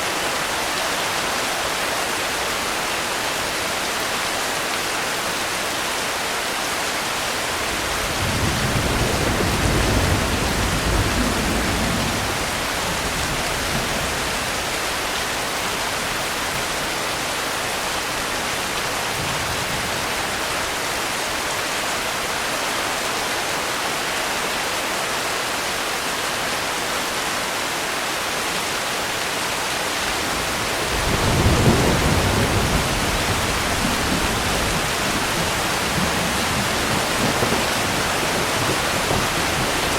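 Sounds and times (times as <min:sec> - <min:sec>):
rain hissing: 0:07.0 - 0:21.4, 0:29.0 - 0:39.9
low thunder rolls: 0:07.5 - 0:14.6, 0:30.0 - 0:39.9.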